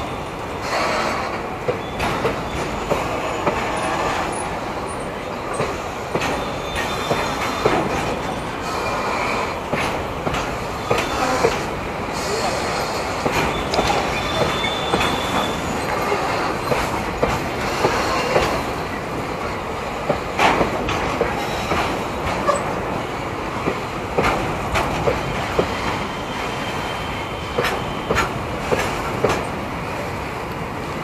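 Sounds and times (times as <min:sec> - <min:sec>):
train wheels rumbling: 0:00.0 - 0:31.0
high squeal: 0:12.2 - 0:16.7, 0:25.9 - 0:28.1.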